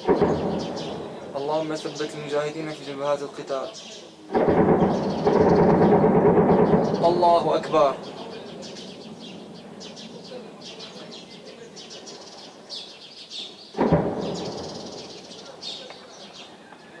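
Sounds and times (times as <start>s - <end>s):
heavy echoing blast: 0.0s - 3.2s, 4.3s - 11.9s, 13.8s - 15.8s
small birds chirping: 0.0s - 17.0s.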